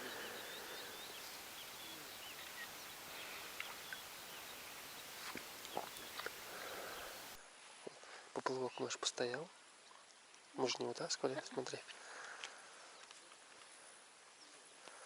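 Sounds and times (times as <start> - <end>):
small birds chirping: 0.0 - 7.4
steady outdoor hiss: 0.0 - 15.0.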